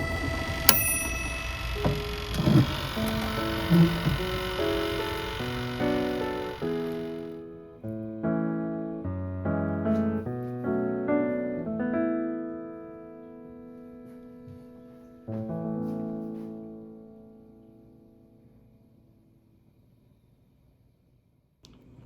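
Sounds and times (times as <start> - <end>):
piano chords: 0.0 - 18.3.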